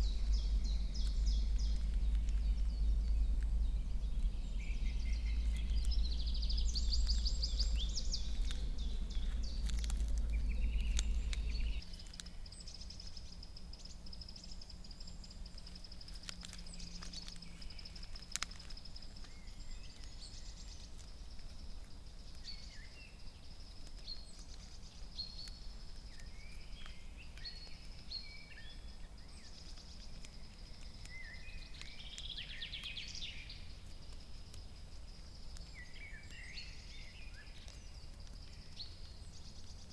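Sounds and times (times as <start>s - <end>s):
low rumble: 0.0s - 14.2s
songbirds singing: 0.0s - 39.9s.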